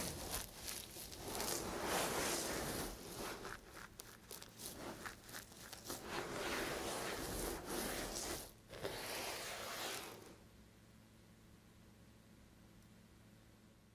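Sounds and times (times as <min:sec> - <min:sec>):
knife cutting dry soap: 0:00.0 - 0:10.4.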